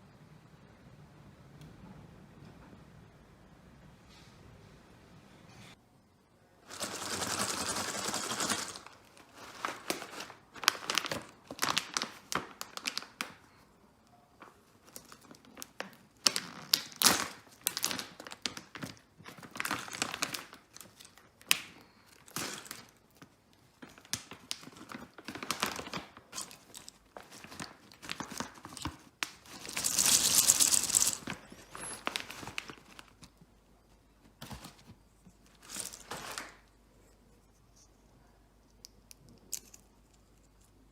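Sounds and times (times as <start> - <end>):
packaging crinkling: 6.7 - 13.4, 14.8 - 23.2, 23.8 - 33.3, 34.4 - 36.7
packaging tearing: 24.1 - 33.1.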